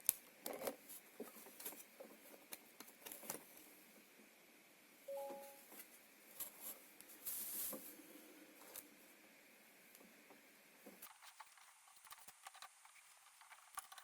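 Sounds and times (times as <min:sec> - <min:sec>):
two-tone electronic beep: 0:05.1 - 0:05.6.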